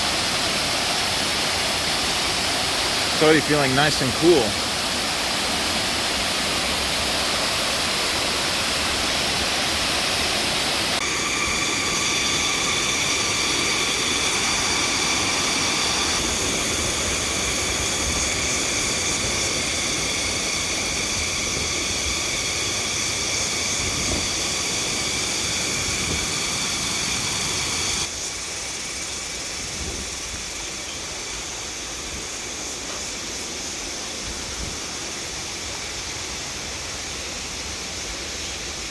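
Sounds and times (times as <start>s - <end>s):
waterfall rushing water: 0.0s - 23.7s
steady high drone: 10.7s - 28.1s.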